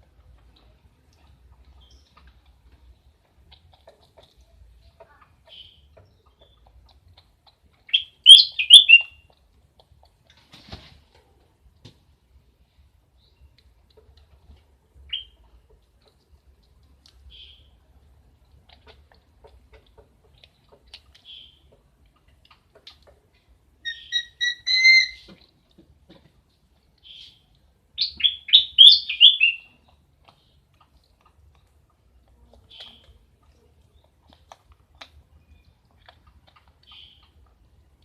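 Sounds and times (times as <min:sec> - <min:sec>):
bird chirping: 0:01.7 - 0:02.4, 0:05.1 - 0:07.0, 0:07.8 - 0:09.4, 0:15.1 - 0:15.5, 0:17.3 - 0:17.8, 0:20.3 - 0:21.8, 0:23.8 - 0:25.4, 0:27.0 - 0:30.6, 0:32.6 - 0:33.2, 0:35.3 - 0:37.6
bursts of rapid bird chirps: 0:07.9 - 0:09.2, 0:23.8 - 0:25.3, 0:28.0 - 0:29.8.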